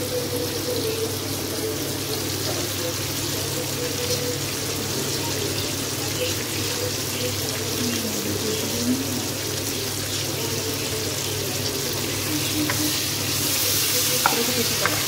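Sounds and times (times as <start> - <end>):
tomato pieces sizzling in hot oil: 0.0 - 15.0.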